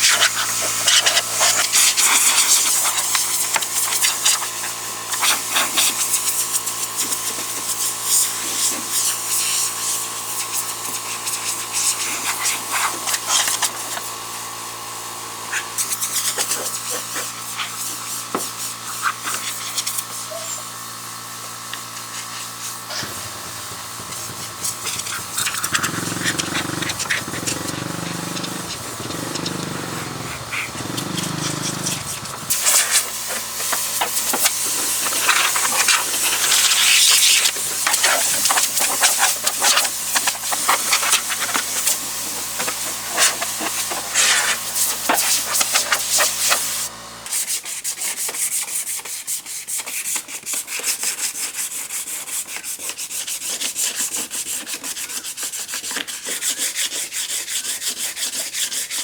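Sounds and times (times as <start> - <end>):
hand sanding strokes: 0.0 - 14.1, 15.4 - 20.8, 21.4 - 59.0
power sander motor hum: 0.0 - 47.3
sanding rasp: 22.0 - 46.8, 47.4 - 59.0.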